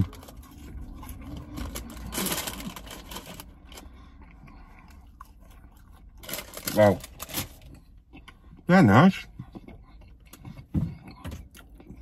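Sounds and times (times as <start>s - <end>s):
person chewing chips: 0.0s - 8.6s
low steady hum: 0.0s - 12.0s
paper bag rustling: 1.4s - 3.6s.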